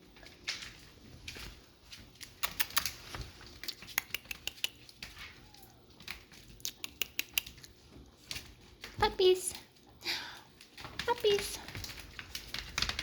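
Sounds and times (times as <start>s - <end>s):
puppy claws scrabbling: 0.1s - 9.0s, 10.7s - 13.0s.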